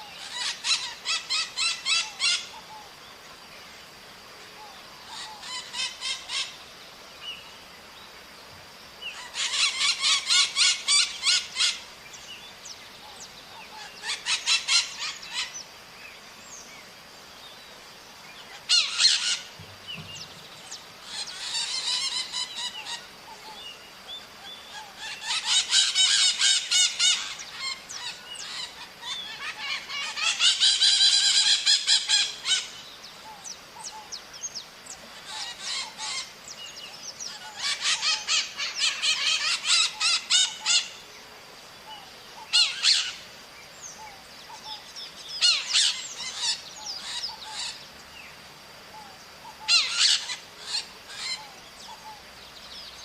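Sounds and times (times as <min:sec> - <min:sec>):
parrots screeching: 0:00.2 - 0:02.5, 0:05.1 - 0:06.5, 0:09.2 - 0:11.8, 0:13.8 - 0:15.5, 0:18.6 - 0:19.5, 0:21.0 - 0:23.1, 0:24.7 - 0:32.7, 0:35.2 - 0:36.3, 0:37.3 - 0:41.0, 0:42.5 - 0:43.2, 0:45.4 - 0:47.8, 0:49.6 - 0:51.5.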